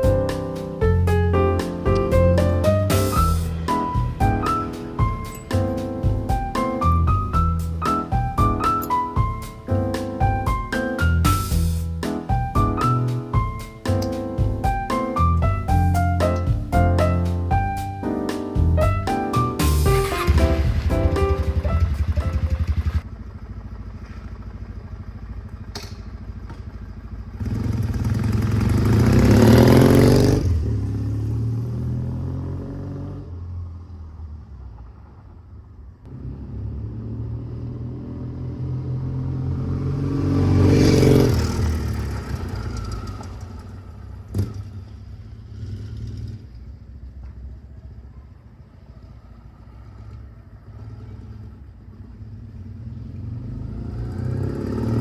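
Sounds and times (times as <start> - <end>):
motorcycle riding past: 0.0 - 11.8, 19.6 - 47.0, 48.8 - 55.0
sharp click: 13.9 - 14.2, 25.7 - 26.1.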